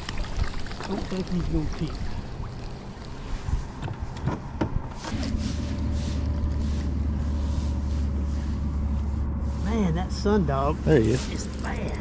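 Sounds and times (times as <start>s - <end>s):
knocks and clatter in boat: 0.0s - 2.7s, 3.4s - 5.4s
boat motor humming: 0.0s - 4.2s, 5.1s - 12.0s.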